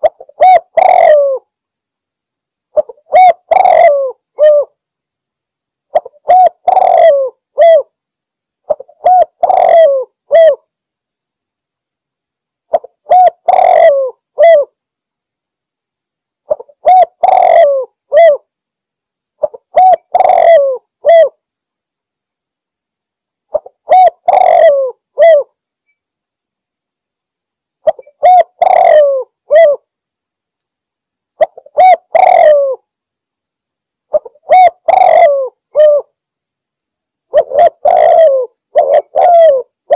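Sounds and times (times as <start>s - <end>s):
dove cooing: 0.0s - 1.5s, 2.8s - 4.8s, 5.9s - 7.9s, 8.7s - 10.6s, 12.7s - 14.8s, 16.5s - 18.4s, 19.4s - 21.4s, 23.5s - 25.5s, 27.8s - 29.9s, 31.4s - 32.8s, 34.1s - 36.1s, 37.3s - 39.9s.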